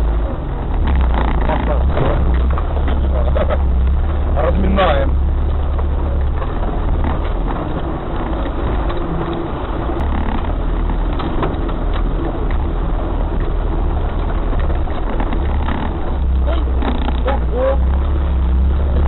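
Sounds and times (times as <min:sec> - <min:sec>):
off-road vehicle engine rumble: 0:00.0 - 0:19.0
small knocks and rattles: 0:13.3 - 0:17.4.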